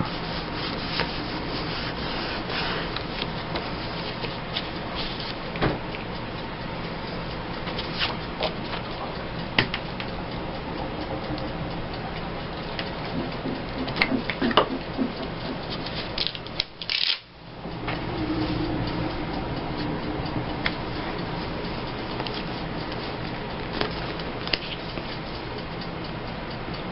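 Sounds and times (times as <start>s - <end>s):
paper rubbed on a table: 0.0s - 3.0s, 3.6s - 5.4s
steady background hum: 0.0s - 26.9s.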